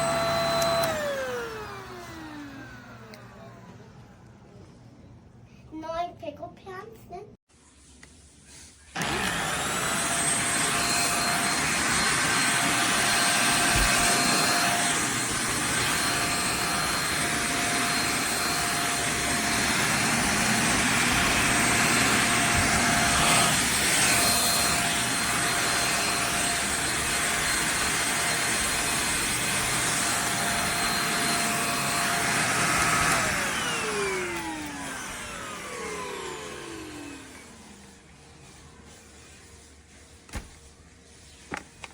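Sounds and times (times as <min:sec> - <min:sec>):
vacuum cleaner motor whining: 0:00.0 - 0:04.1, 0:08.9 - 0:37.8.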